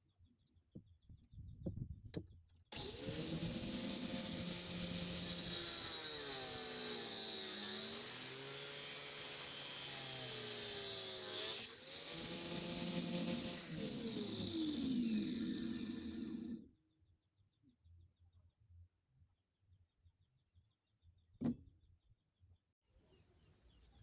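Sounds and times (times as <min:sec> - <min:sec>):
angle grinder motor whining: 0:02.7 - 0:16.7.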